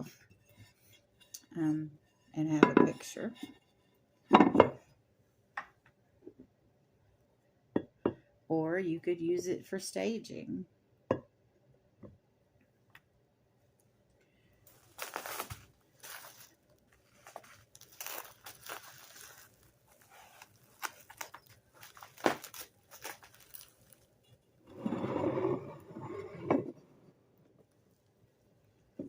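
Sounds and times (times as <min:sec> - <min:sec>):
paper packing material rustling: 0:14.7 - 0:24.2.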